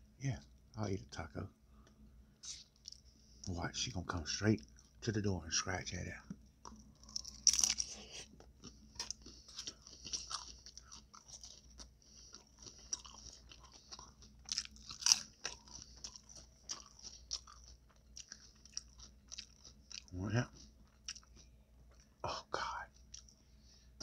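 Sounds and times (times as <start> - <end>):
crunchy chewing and mouth clicks: 1.8 - 3.6, 4.2 - 5.1, 6.2 - 23.5.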